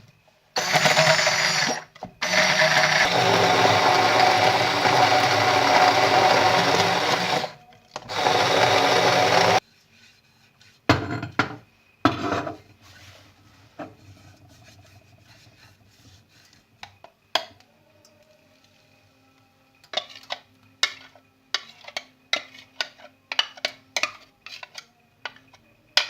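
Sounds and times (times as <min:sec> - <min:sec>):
electric blender motor: 0:00.6 - 0:09.6.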